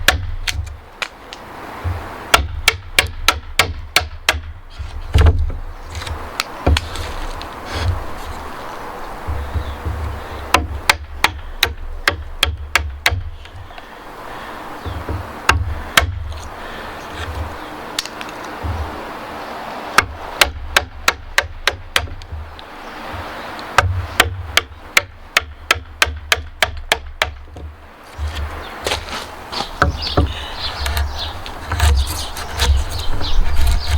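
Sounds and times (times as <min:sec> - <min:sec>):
mallet striking wood chisel: 0:00.0 - 0:00.8, 0:01.9 - 0:04.5, 0:09.3 - 0:13.3, 0:23.2 - 0:29.0, 0:29.7 - 0:33.0.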